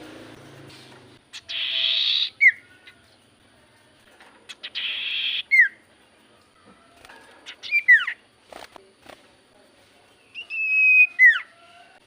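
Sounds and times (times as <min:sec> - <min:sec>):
bird harsh rasp and whistle: 0:01.3 - 0:02.9, 0:04.5 - 0:05.8, 0:07.0 - 0:08.2, 0:10.4 - 0:11.9.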